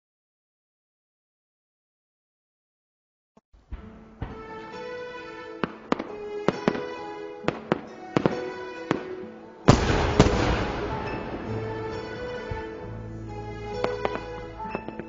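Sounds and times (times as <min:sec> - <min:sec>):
fireworks bangs: 0:03.7 - 0:12.9
fireworks crackling: 0:03.7 - 0:15.0
music: 0:03.7 - 0:15.0.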